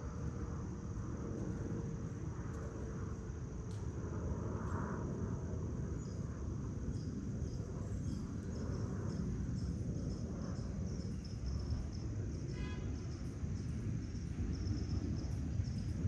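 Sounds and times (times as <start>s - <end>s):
crickets trilling: 5.0s - 16.0s.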